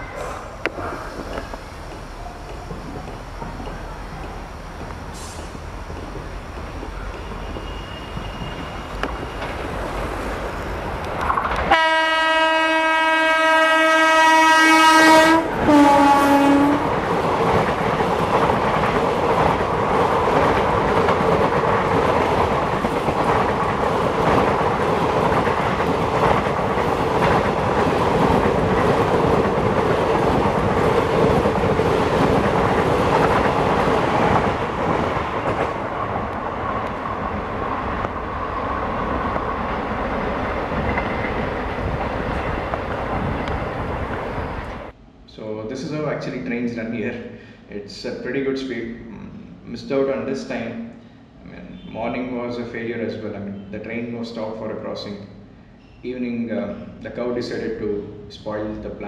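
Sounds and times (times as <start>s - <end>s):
wheels clattering over rail joints: 0.0s - 11.8s, 16.8s - 44.9s
locomotive horn blast: 11.7s - 16.9s.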